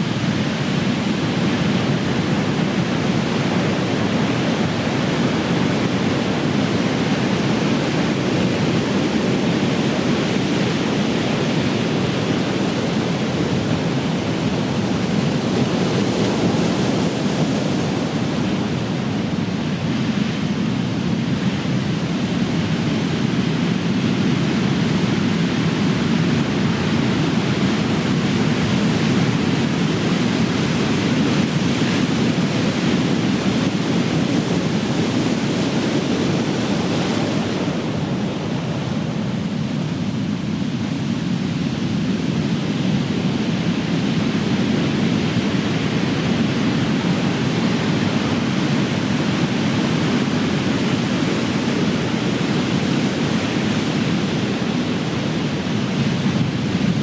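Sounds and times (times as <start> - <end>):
ocean waves breaking: 26.4 - 57.0.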